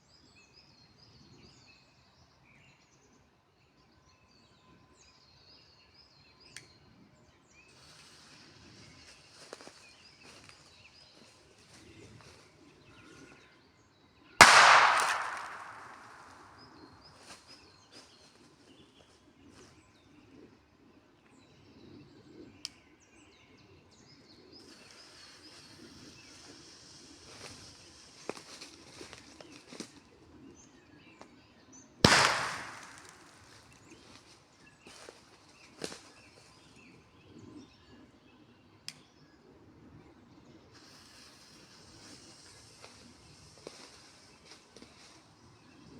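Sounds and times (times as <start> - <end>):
firecracker bang echoing: 14.4 - 16.7, 32.0 - 33.4.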